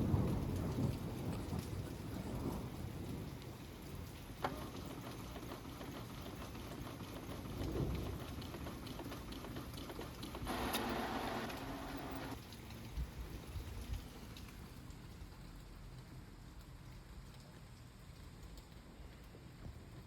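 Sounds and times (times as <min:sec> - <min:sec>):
thunder rumbling: 0:00.0 - 0:04.4
steady rain: 0:00.0 - 0:20.0.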